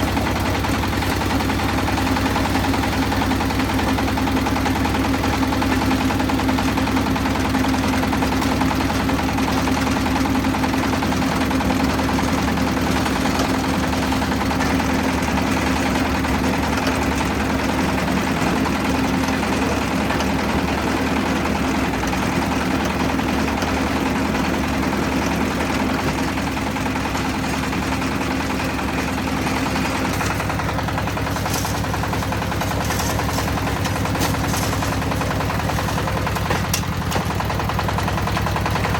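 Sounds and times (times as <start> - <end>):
concrete mixer engine running: 0.0 - 38.9.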